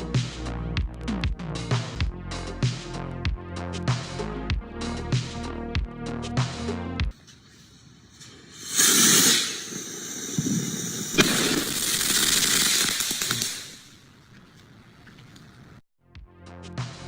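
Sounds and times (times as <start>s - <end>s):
firework hissing: 7.2s - 14.2s
firework bang: 8.5s - 14.0s.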